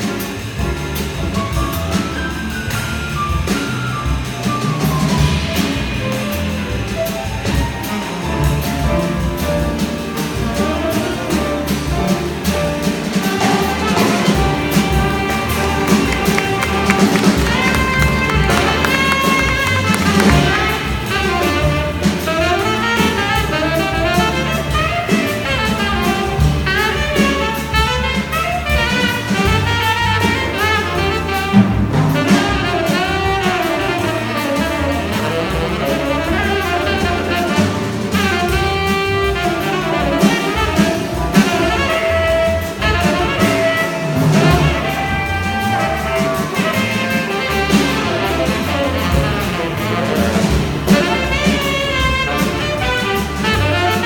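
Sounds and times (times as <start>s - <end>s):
jazz bass and drums: 0.0s - 54.0s
tenor saxophone melody: 13.2s - 54.0s.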